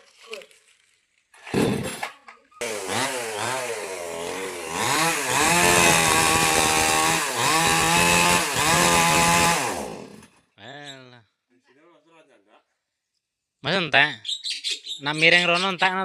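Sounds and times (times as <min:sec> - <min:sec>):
mini chainsaw revving: 0:02.6 - 0:10.4.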